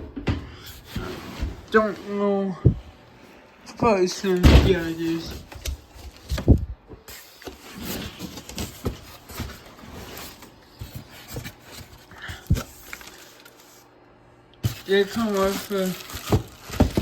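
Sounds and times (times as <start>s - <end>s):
objects being handled: 14.6s - 17.0s.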